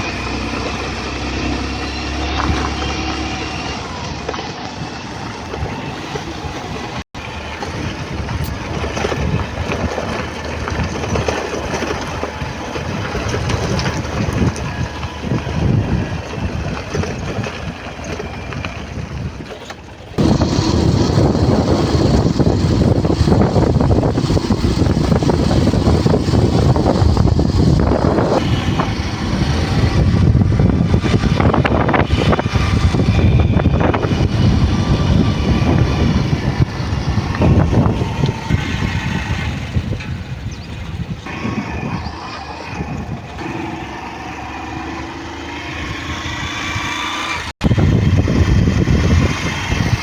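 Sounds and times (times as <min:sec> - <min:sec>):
wind buffeting microphone: 0:00.0 - 0:50.0
low rumble: 0:20.2 - 0:45.1.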